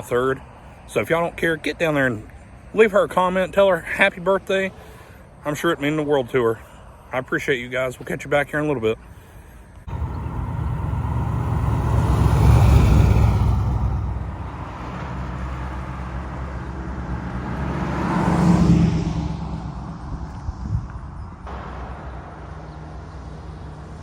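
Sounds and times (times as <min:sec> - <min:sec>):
cars driving past: 0:09.9 - 0:20.2.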